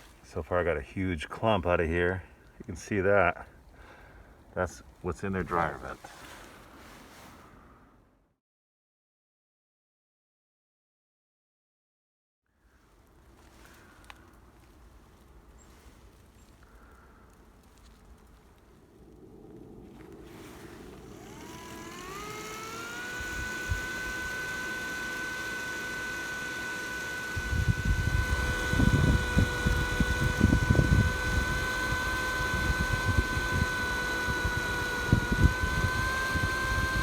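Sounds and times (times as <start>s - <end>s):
blower motor whine: 12.9s - 37.0s
wind buffeting microphone: 27.4s - 33.7s.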